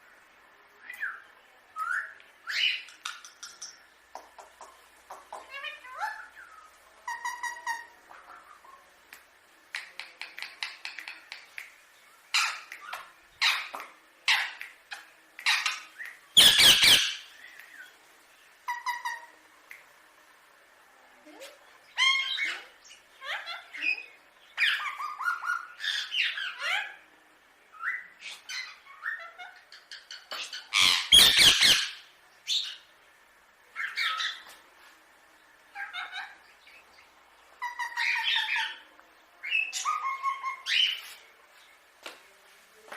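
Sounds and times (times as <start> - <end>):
parakeet calling and squawking: 2.5 - 3.8, 5.1 - 8.7, 12.2 - 17.4, 18.6 - 19.4, 21.8 - 27.1, 27.8 - 32.9, 33.7 - 34.6, 35.7 - 41.2.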